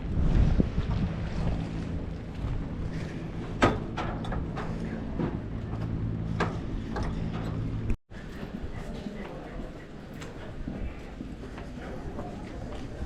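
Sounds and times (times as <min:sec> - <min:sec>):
low engine hum: 0:00.0 - 0:08.0.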